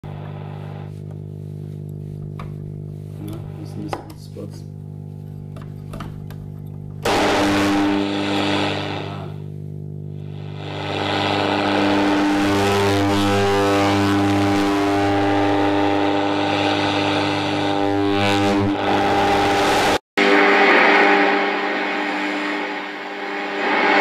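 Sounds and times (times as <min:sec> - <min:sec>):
radio static: 0:00.0 - 0:06.1, 0:07.0 - 0:24.0
low drone tones: 0:17.6 - 0:24.0.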